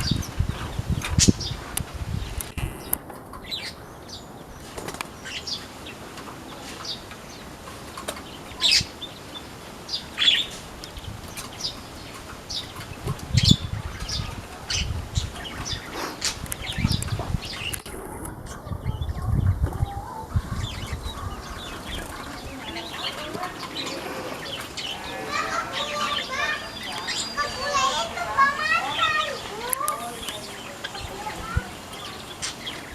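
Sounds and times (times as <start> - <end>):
birds chirping: 0.0 - 32.9
wings fluttering: 4.6 - 5.4.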